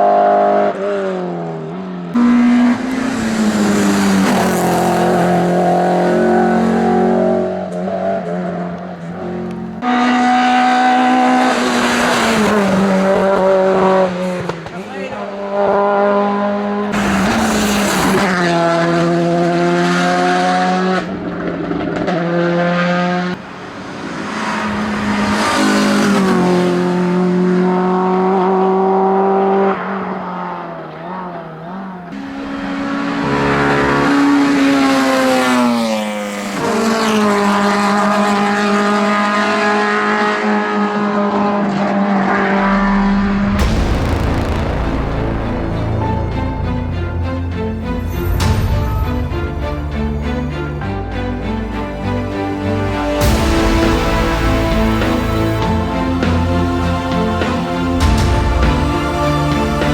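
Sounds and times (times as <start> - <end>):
racing car engine revving: 0.0 - 59.9.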